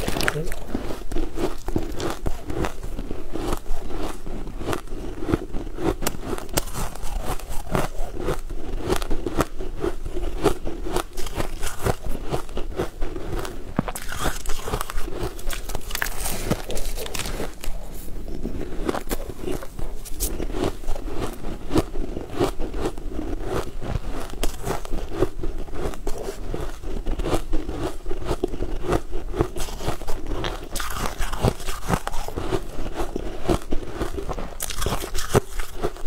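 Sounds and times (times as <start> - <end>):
chewing crunchy cake: 0.0 - 36.0.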